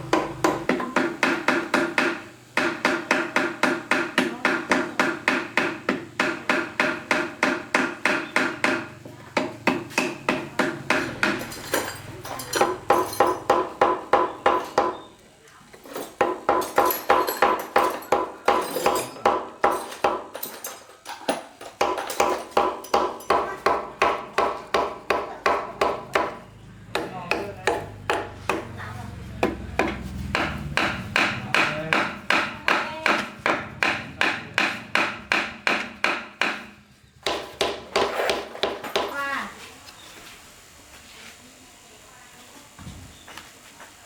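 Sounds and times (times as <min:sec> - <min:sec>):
hammer striking metal: 0:29.4 - 0:39.2.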